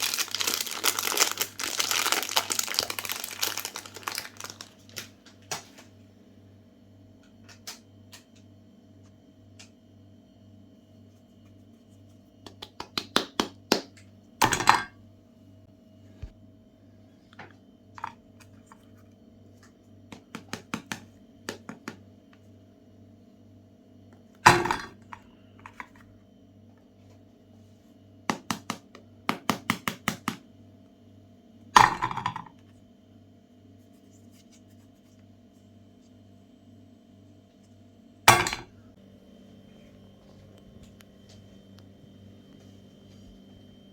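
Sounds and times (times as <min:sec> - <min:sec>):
faint steady hum: 0:13.9 - 0:29.3, 0:30.4 - 0:43.9.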